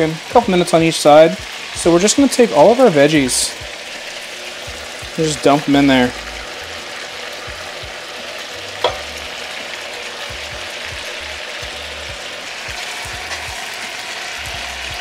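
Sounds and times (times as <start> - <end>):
food sizzling in a skillet: 0.0 - 15.0.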